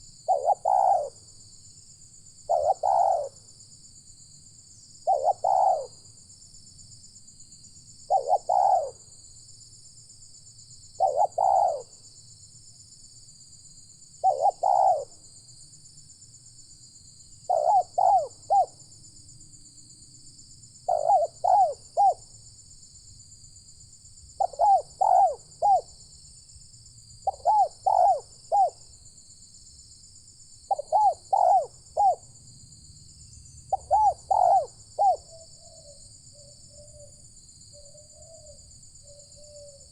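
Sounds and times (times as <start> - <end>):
dove cooing: 0.0 - 1.2, 2.5 - 3.4, 5.0 - 6.0, 8.1 - 9.0, 11.0 - 12.0, 14.2 - 15.2, 17.5 - 18.8, 20.9 - 22.2, 24.4 - 25.9, 27.2 - 28.8, 30.7 - 32.2, 33.7 - 37.2, 37.8 - 39.9.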